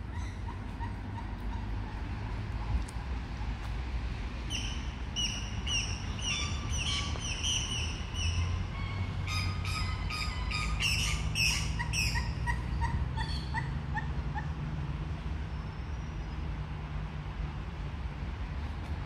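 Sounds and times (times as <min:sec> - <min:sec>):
wild birds chirping: 0:04.5 - 0:14.5.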